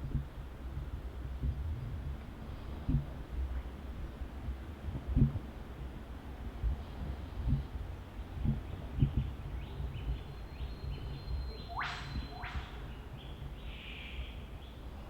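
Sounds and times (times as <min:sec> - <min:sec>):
bird chirps: 0:10.1 - 0:13.0
high bird whistle: 0:11.2 - 0:12.8
bird whip-crack calls: 0:11.6 - 0:12.9.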